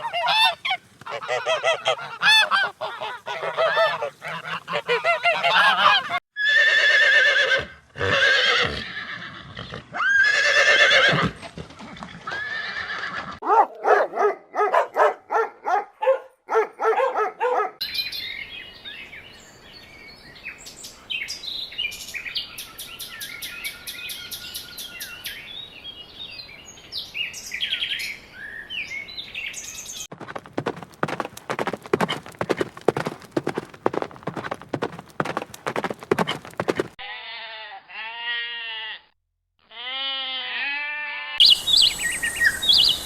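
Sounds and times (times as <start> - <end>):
honking calls: 0.0 - 6.2
horse whinnying: 5.0 - 13.4.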